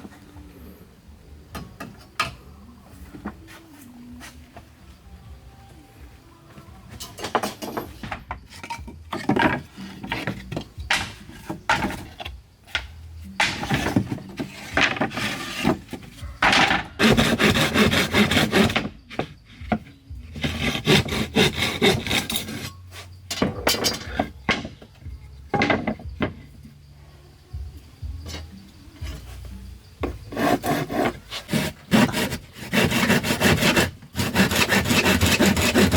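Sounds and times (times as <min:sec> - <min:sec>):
rasping tool on wood: 0:17.0 - 0:19.3, 0:20.4 - 0:22.7, 0:30.3 - 0:35.9.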